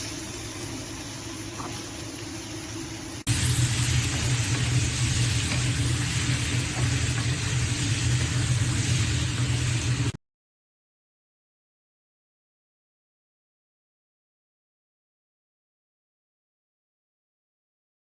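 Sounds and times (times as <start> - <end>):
food sizzling in a wok: 0.0 - 10.2.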